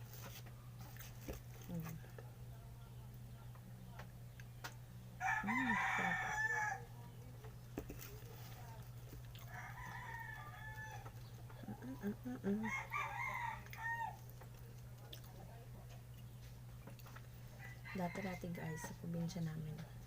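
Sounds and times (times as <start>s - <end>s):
steady low hum: 0.0s - 20.0s
rooster crowing: 5.2s - 6.9s, 9.4s - 11.2s, 12.5s - 14.3s, 17.5s - 19.2s.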